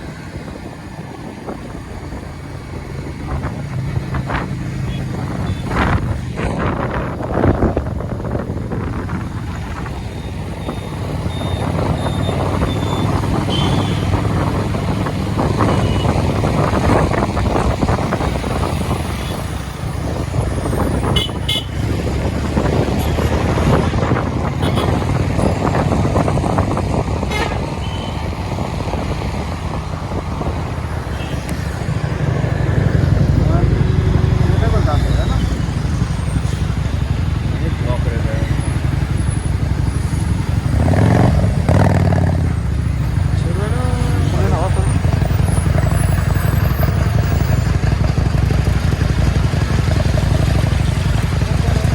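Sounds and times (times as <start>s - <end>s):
motorcycle engine and tyre rumble: 0.0s - 51.9s
road and traffic noise: 0.0s - 51.9s
wind on microphone: 0.0s - 51.9s.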